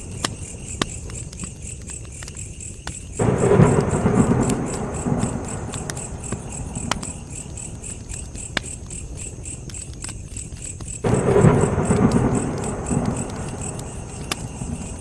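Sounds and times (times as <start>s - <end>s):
campfire crackling: 0.0s - 15.0s
crickets chirping: 0.0s - 15.0s
low rumble of flames: 0.0s - 15.0s.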